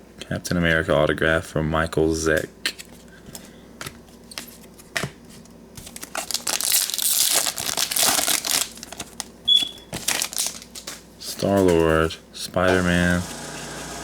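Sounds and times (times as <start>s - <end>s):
wrapper tearing and crinkling: 5.8s - 9.3s, 9.9s - 11.1s.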